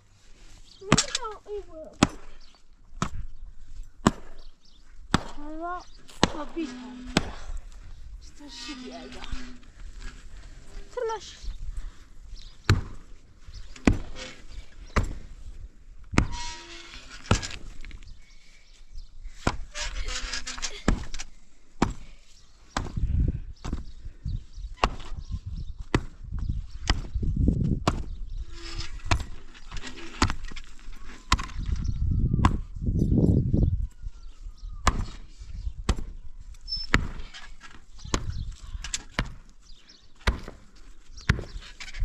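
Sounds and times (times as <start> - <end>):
hand tools chopping wood: 2.0 - 2.4, 4.0 - 4.5, 5.1 - 7.5, 34.8 - 35.2, 36.9 - 39.5, 40.2 - 41.7.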